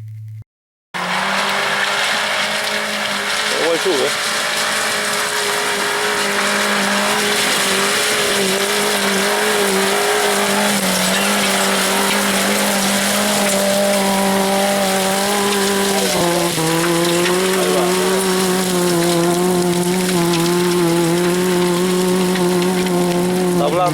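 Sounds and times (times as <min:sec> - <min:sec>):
off-road vehicle engine revving: 0:01.0 - 0:23.9
tyres crunching on stones: 0:01.0 - 0:23.9.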